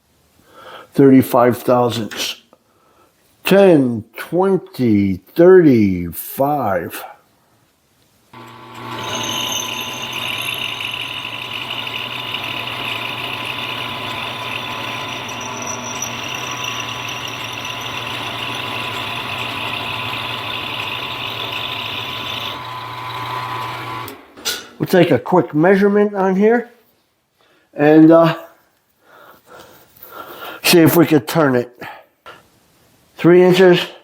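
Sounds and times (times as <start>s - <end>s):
hissing squealing cutting noise: 8.4s - 24.2s
milling machine motor hum: 8.4s - 24.4s.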